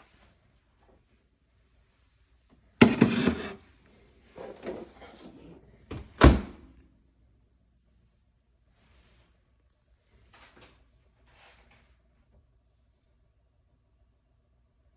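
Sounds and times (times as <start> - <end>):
microwave door clunk: 2.8 - 3.6, 5.9 - 6.6
microwave door shutting knocks: 2.8 - 3.6, 5.9 - 6.6.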